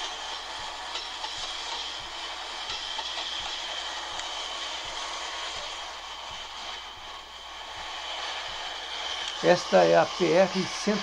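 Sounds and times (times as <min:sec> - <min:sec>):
wheels clicking over rail joints: 0:00.0 - 0:05.7
diesel freight train rumbling: 0:00.0 - 0:11.0.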